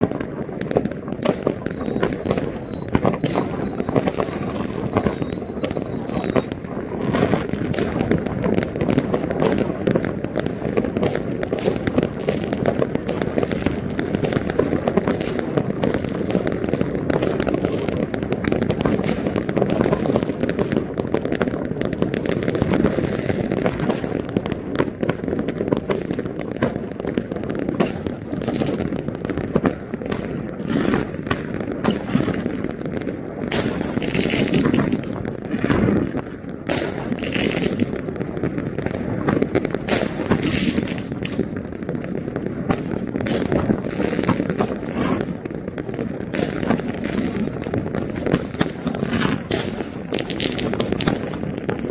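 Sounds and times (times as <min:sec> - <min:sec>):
fireworks popping and banging: 0:00.0 - 0:51.9.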